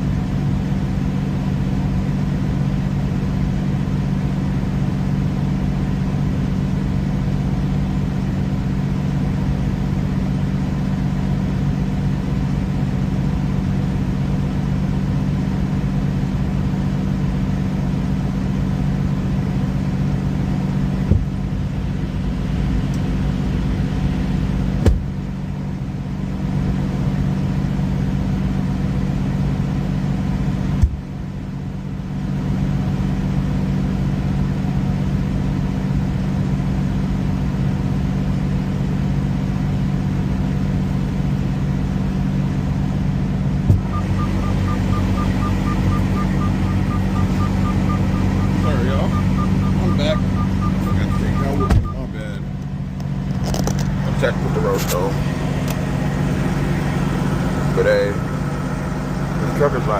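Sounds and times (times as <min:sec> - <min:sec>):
truck engine idling: 0:41.0 - 0:59.9.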